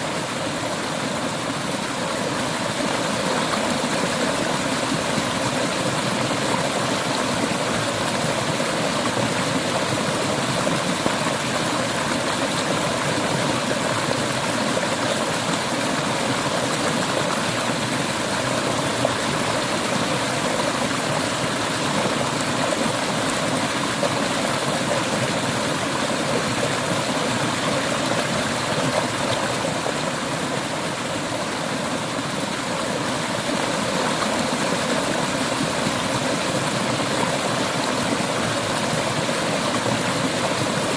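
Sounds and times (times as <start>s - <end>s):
river water running over stones: 0.0s - 40.9s.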